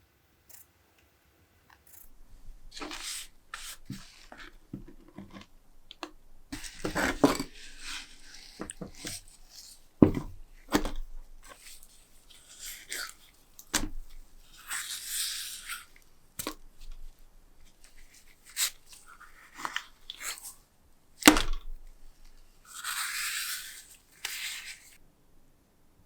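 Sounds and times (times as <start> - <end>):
rustling scrapes: 2.0 - 16.0, 21.6 - 25.0.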